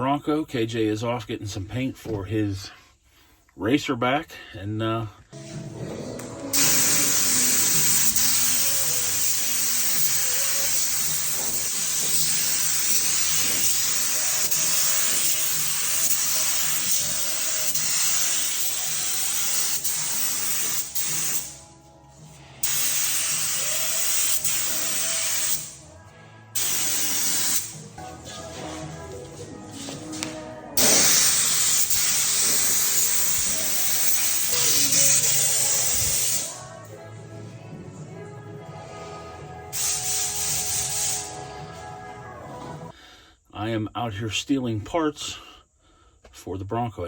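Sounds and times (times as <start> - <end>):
background music: 5.3 - 43.0
spray paint hiss: 6.5 - 21.6, 22.6 - 25.8, 26.6 - 28.0, 29.7 - 36.6, 39.7 - 41.5.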